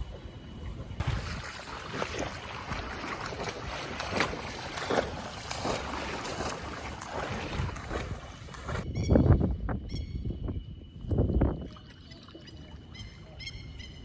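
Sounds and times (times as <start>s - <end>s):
floodwater splashing: 0.0s - 8.8s
wind on microphone: 0.0s - 12.1s.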